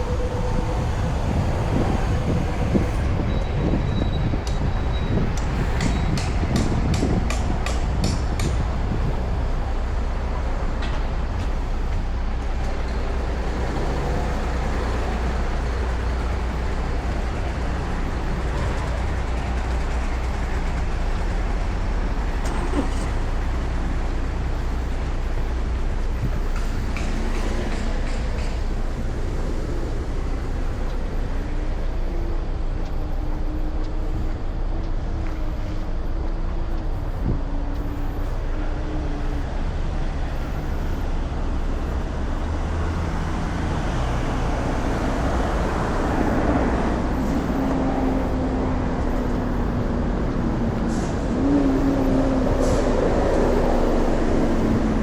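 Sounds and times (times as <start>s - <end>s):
street traffic rumble: 0.0s - 55.0s.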